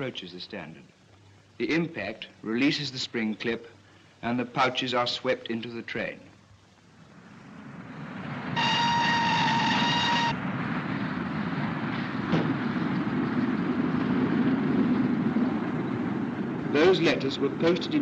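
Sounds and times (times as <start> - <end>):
train rumbling: 7.1 - 18.0
steam locomotive whistle: 8.6 - 10.4.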